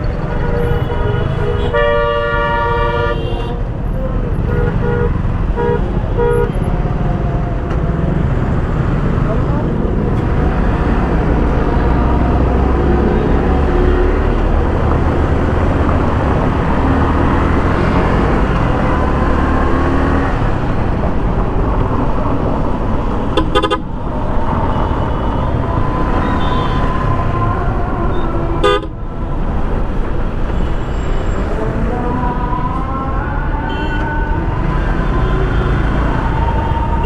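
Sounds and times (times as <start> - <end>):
vehicle horns honking: 0.0 - 6.7, 23.3 - 24.0, 24.7 - 27.2, 28.6 - 29.0, 33.6 - 34.3
wind and engine rush: 0.0 - 37.0.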